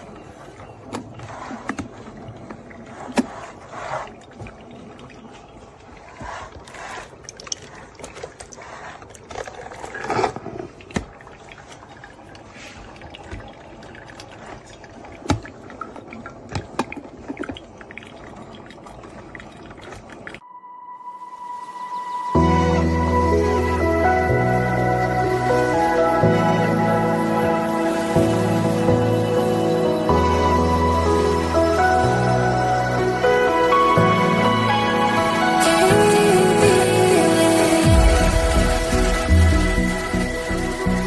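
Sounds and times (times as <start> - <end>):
liquid pouring and trickling: 0.0 - 20.4, 22.3 - 41.0
steady high tone: 20.4 - 41.0.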